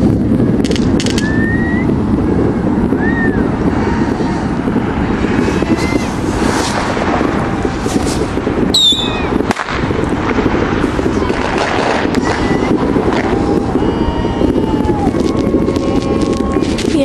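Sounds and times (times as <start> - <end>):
continuous low rumble: 0.0 - 17.0
fireworks bursting: 0.0 - 17.0
falling whistle: 1.2 - 1.9, 8.7 - 9.3.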